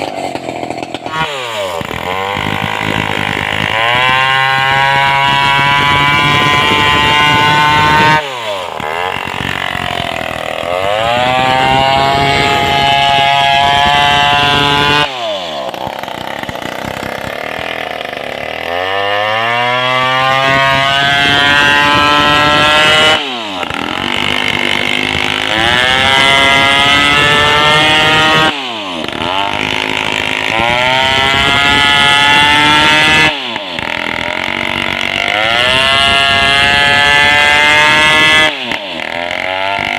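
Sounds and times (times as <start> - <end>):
chainsaw sawing a log: 0.0 - 39.9.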